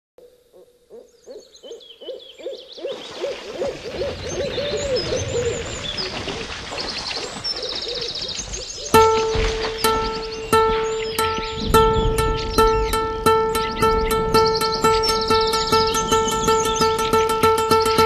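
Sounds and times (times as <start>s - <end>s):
bird hooting: 0.2s - 6.4s
high chirps: 8.8s - 18.0s.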